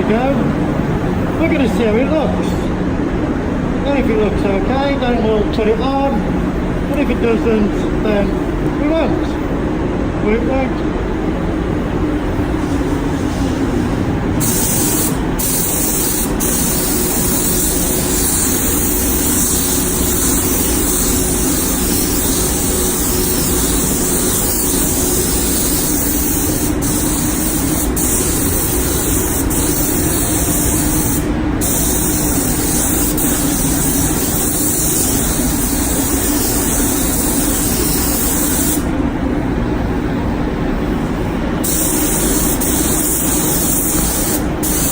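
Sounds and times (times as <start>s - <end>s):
spray booth air system running: 0.0s - 44.9s
spray gun hissing: 12.4s - 39.0s, 41.6s - 44.9s.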